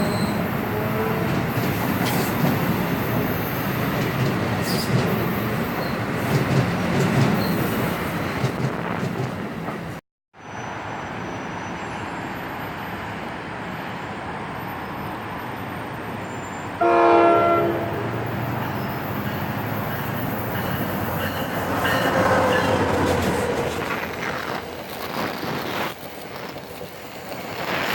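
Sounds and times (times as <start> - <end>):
train rumbling past: 0.0 - 27.9
multi-note air horn blast: 16.8 - 18.3.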